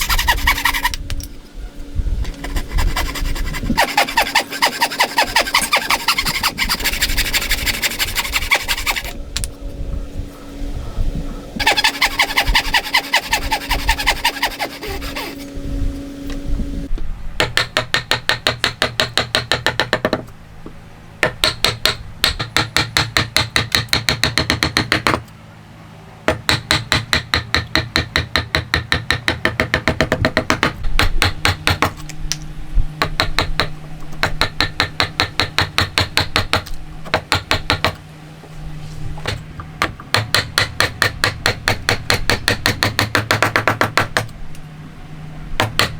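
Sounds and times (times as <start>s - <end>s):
hand tool strokes on wood: 0.0s - 1.0s, 2.2s - 9.2s, 11.6s - 15.5s.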